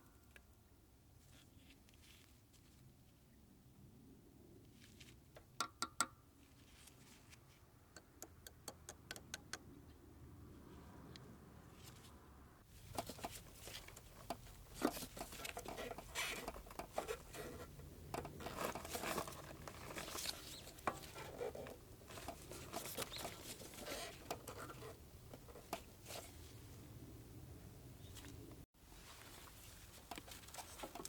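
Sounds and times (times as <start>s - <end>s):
scratchy scraping and rustling: 12.8s - 26.6s, 29.0s - 31.0s.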